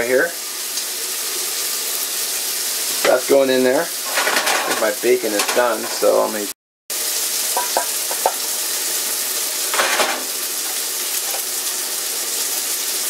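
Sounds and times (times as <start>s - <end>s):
meat sizzling in frying pans: 0.0s - 13.0s
skillet rattling on strainer: 4.1s - 6.2s, 9.8s - 10.3s.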